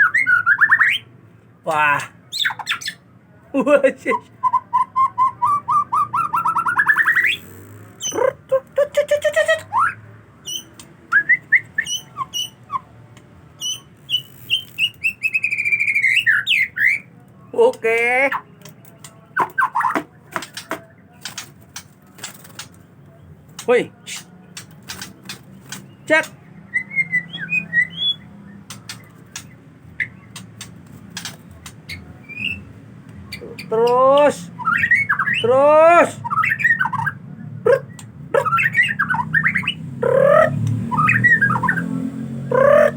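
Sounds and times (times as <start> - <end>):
bird whistling song: 0.0 - 1.1, 2.3 - 3.0, 4.1 - 8.2, 8.9 - 12.9, 13.6 - 17.1, 18.3 - 21.4, 24.1 - 33.8, 34.5 - 35.5, 36.2 - 41.9, 42.5 - 42.9
songbird whistled notes: 9.7 - 12.9, 13.6 - 17.1, 26.7 - 30.3, 34.6 - 35.5, 40.9 - 41.8
sharp clicks: 10.6 - 11.2, 18.6 - 22.9, 23.5 - 26.4, 28.6 - 32.0, 40.6 - 40.8.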